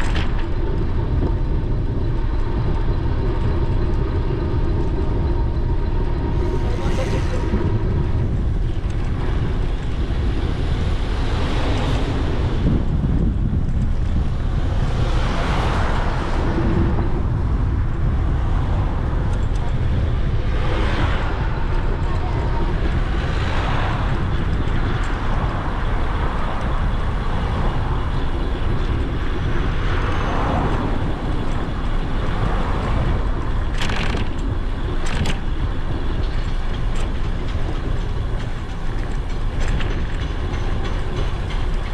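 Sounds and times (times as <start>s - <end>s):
vehicles passing: 0.0s - 41.9s
wind rumble on microphone: 0.0s - 41.9s.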